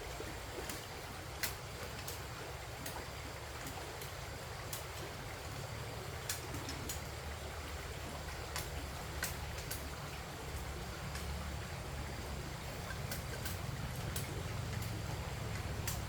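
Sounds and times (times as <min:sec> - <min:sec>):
light sharp clicks: 0:00.6 - 0:05.0, 0:06.2 - 0:07.1, 0:08.4 - 0:09.9, 0:12.8 - 0:16.0.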